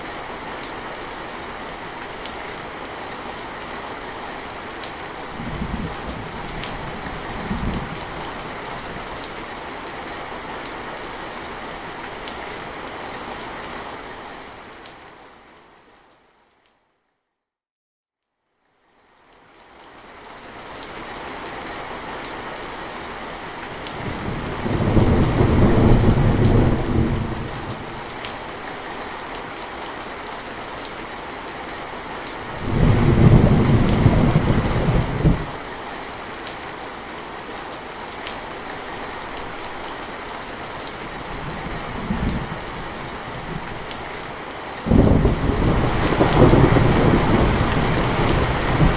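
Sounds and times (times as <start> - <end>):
steady rain falling: 0.0 - 16.8, 18.6 - 48.9
deep rolls of thunder: 24.1 - 27.8, 32.6 - 35.5, 44.9 - 48.9.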